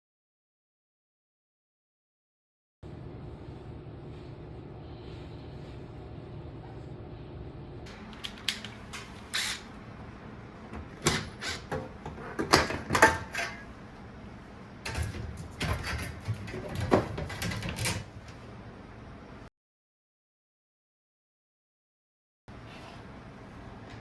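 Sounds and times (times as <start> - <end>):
sharp clicks and knocks of tools: 8.1 - 9.5.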